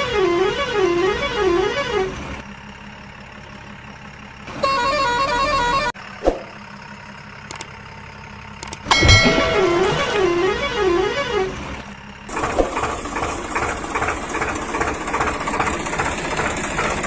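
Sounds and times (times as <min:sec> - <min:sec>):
electronic horn jingle: 0:04.6 - 0:05.9, 0:08.9 - 0:11.6
electronic toy siren tone: 0:04.6 - 0:05.9.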